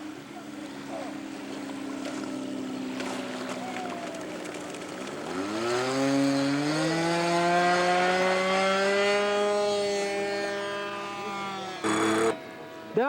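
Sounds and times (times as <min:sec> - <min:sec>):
model plane engine revving: 0:05.2 - 0:13.0.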